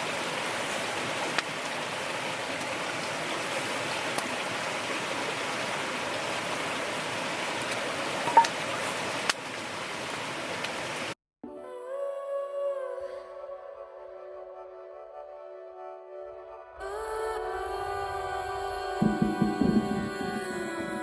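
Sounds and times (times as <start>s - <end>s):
water rushing: 0.0s - 11.2s, 16.8s - 21.0s
soft music with held tones: 11.4s - 21.0s.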